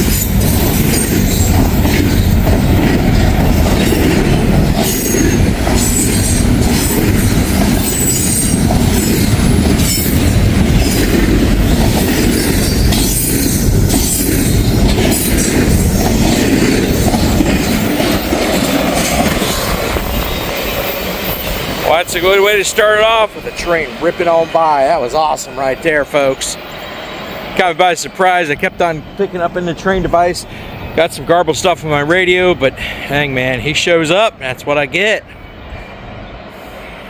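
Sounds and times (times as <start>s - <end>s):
wheels clicking over rails: 0.0s - 26.4s
freight train rumbling past: 0.0s - 37.0s.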